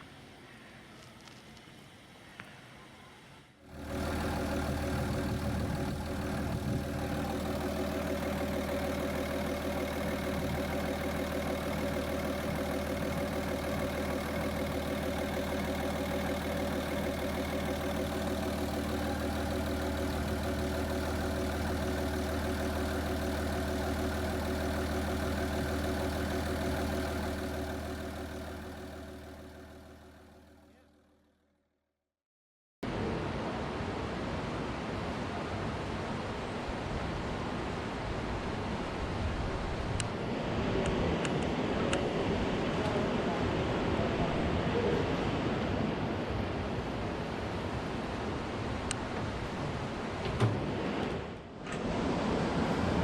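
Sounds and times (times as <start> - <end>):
boat engine idling: 3.7 - 31.1.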